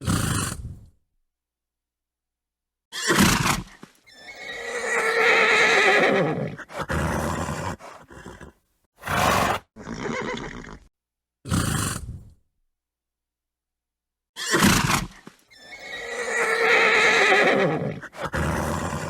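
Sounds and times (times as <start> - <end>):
horse whinnying: 2.9 - 10.9, 14.4 - 19.0
short breathy horse sounds: 6.6 - 10.9, 11.5 - 12.4, 14.5 - 16.0, 17.9 - 19.0.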